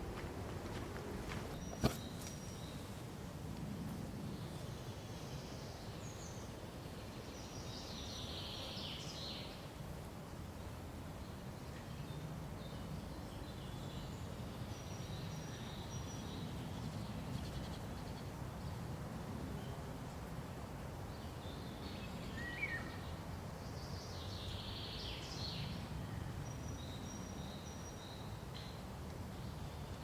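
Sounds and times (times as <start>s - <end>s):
forest birds chirping and trilling: 1.3s - 3.1s, 21.1s - 30.0s.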